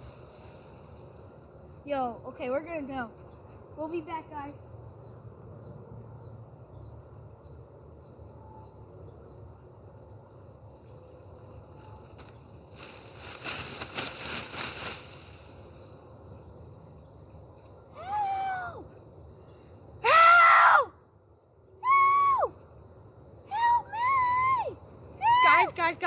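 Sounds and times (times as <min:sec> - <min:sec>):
crickets chirping: 0:00.0 - 0:26.0
rustling noise: 0:11.4 - 0:16.1.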